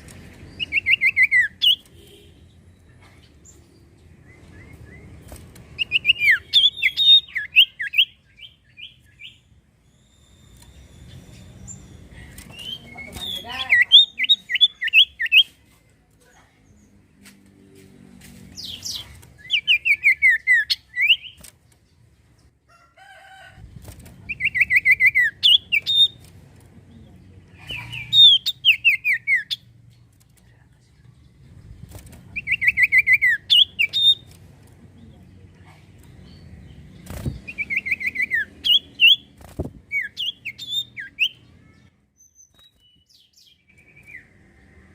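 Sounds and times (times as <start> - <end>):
bird whistling song: 0.5 - 2.0, 5.8 - 15.6, 18.6 - 21.4, 24.3 - 26.2, 27.7 - 29.6, 32.4 - 34.3, 37.5 - 39.3, 39.9 - 41.4.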